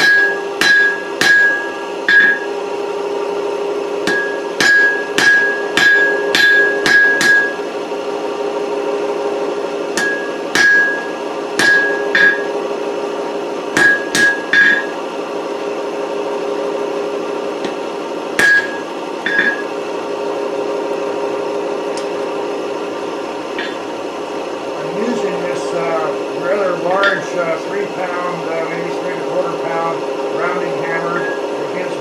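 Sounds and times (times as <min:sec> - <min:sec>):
hammer striking hot steel: 0:00.0 - 0:02.6, 0:04.0 - 0:07.6, 0:09.9 - 0:12.6, 0:13.7 - 0:15.0, 0:18.4 - 0:19.8, 0:23.6 - 0:23.8, 0:26.8 - 0:27.4, 0:31.0 - 0:31.4
metallic ring: 0:00.0 - 0:02.6, 0:04.0 - 0:07.6, 0:10.0 - 0:12.6, 0:13.8 - 0:15.0, 0:18.4 - 0:19.8, 0:23.6 - 0:23.8, 0:27.0 - 0:27.3, 0:31.1 - 0:31.5
steady hum: 0:00.0 - 0:32.0.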